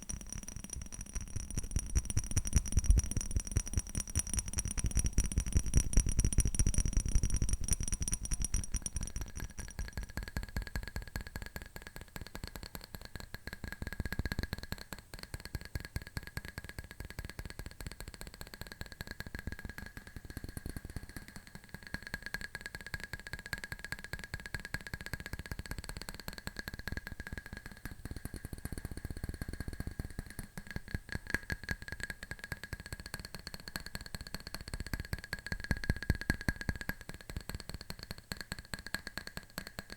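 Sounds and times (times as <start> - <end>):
fingernails tapping on hard object: 0.0 - 10.3.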